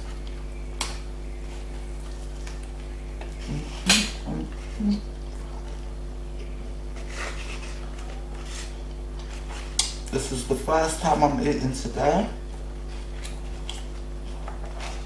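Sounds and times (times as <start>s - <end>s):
low electrical hum: 0.0s - 15.0s
mouth sounds: 3.4s - 5.1s.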